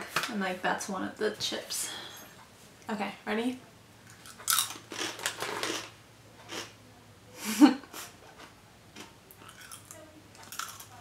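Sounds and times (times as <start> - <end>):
cracker crunching: 4.0 - 6.7, 8.3 - 11.0.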